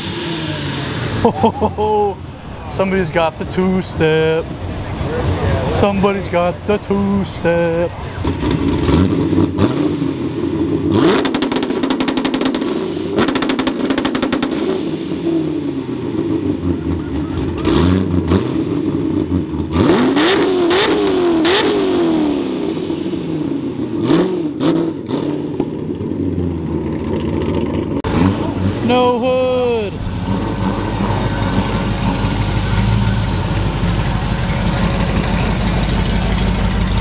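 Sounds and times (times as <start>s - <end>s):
car engines revving: 0.0s - 37.0s
engine rev limiter popping bangs: 10.9s - 15.3s.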